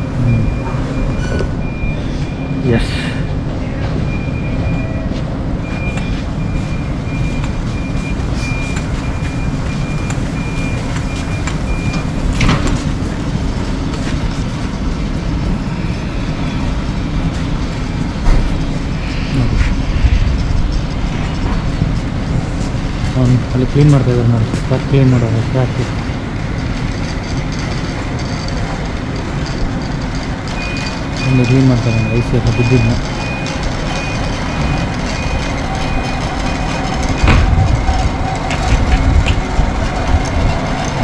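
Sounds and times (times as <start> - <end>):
high electronic beeping: 0.0 - 12.4, 30.6 - 38.1
train rumbling at standstill: 0.0 - 41.0.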